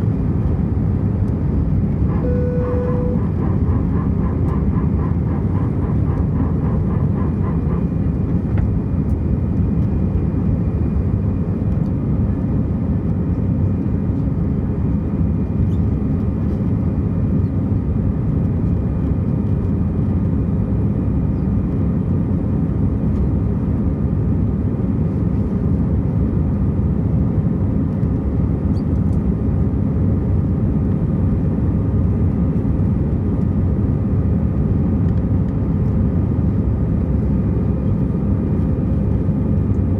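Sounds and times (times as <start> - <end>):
jet engine cabin rumble: 0.0 - 39.9
faint steady whine: 1.9 - 7.0.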